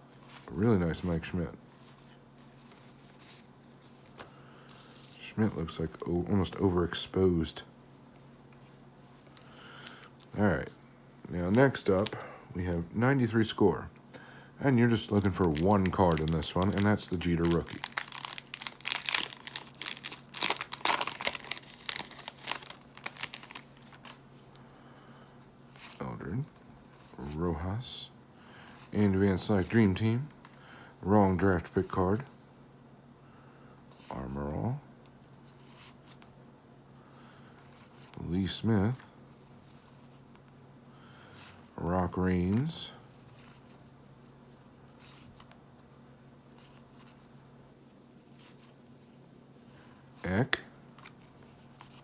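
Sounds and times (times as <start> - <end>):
low steady hum: 0.0 - 52.0
foil wrapper tearing and crinkling: 15.0 - 24.2.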